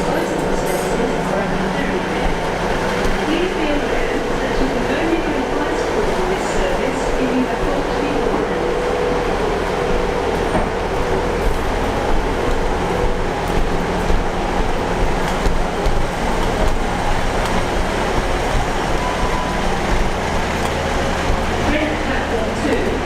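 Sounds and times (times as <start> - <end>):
train engine and rail rumble: 0.0 - 23.0.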